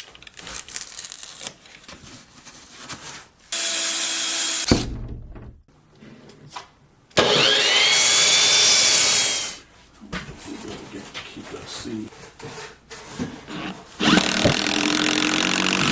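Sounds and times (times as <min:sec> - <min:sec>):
power saw cutting wood: 0:03.6 - 0:04.7, 0:07.2 - 0:09.6, 0:13.5 - 0:15.9.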